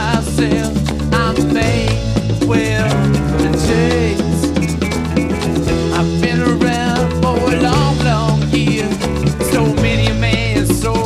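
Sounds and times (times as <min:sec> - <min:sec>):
wavering singing voice: 0:00.0 - 0:04.6
upbeat salsa-like song: 0:00.0 - 0:11.0.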